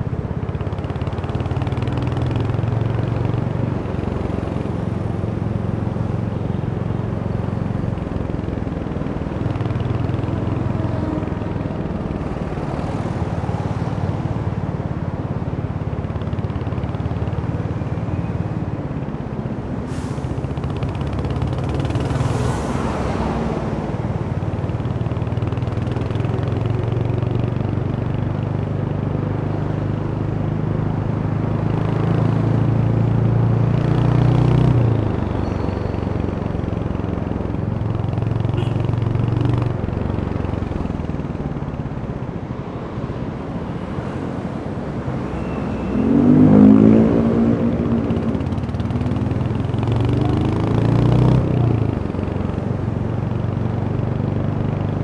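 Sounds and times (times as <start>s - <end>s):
motorcycle engine running: 24.1s - 44.0s, 46.6s - 55.0s
motorcycle engine revving up: 44.6s - 53.2s.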